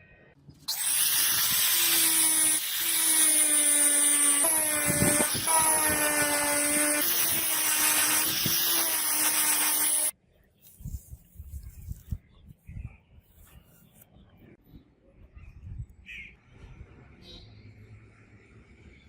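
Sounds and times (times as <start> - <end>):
electric power tool whining: 0.7 - 10.1.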